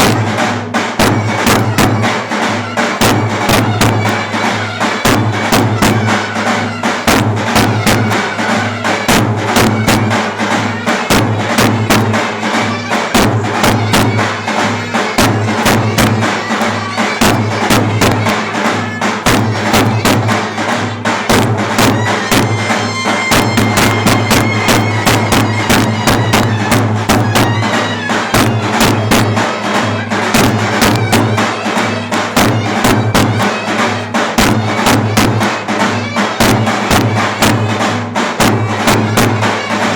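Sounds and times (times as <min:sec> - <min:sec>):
fast drum beat: 0:00.0 - 0:39.9
clarinet melody: 0:22.0 - 0:30.1.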